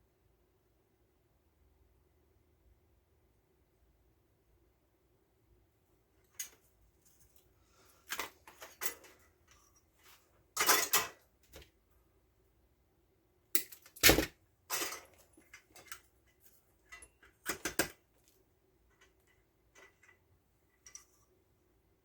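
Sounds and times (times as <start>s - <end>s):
tools clattering on a workbench: 8.0s - 11.7s, 13.6s - 18.1s, 18.9s - 20.2s, 20.8s - 21.2s.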